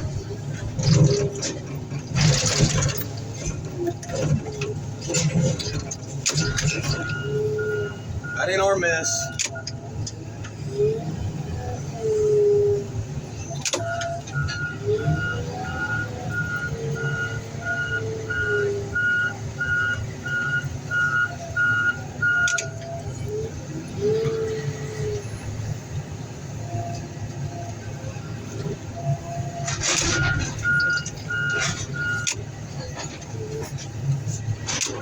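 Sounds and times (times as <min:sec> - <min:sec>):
clatter: 0:00.0 - 0:07.2, 0:29.6 - 0:35.0
diesel engine running: 0:00.0 - 0:35.0
reversing alarm beeping: 0:06.3 - 0:09.8, 0:13.8 - 0:23.0, 0:29.1 - 0:32.4.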